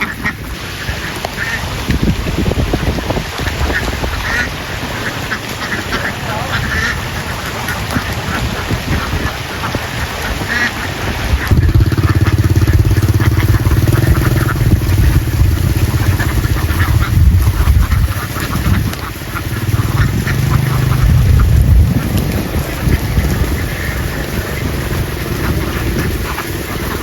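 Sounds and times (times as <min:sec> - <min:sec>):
ducks quacking: 0:00.0 - 0:01.8, 0:02.8 - 0:27.0
vehicle engine humming: 0:10.8 - 0:27.0.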